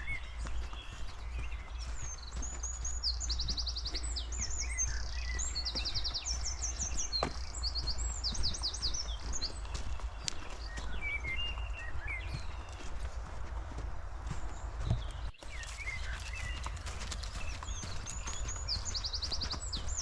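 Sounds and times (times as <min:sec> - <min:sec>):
songbird singing trills: 0:00.0 - 0:20.0
faint footstep ticks: 0:00.1 - 0:15.3.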